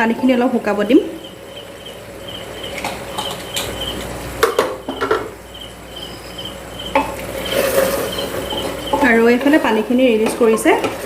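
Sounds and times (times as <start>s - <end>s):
chicken frying: 0.0s - 11.0s
high chirping pulses: 0.2s - 9.8s
metal spatula scraping pan: 7.0s - 11.0s.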